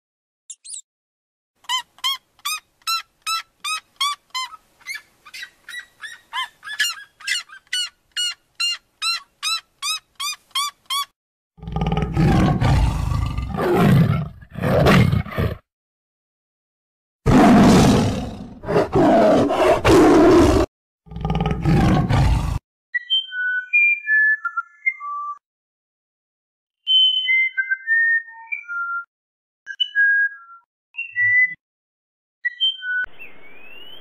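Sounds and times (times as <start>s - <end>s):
bird yelping calls: 1.7s - 11.1s
tiger roaring: 11.6s - 15.6s, 17.3s - 22.6s.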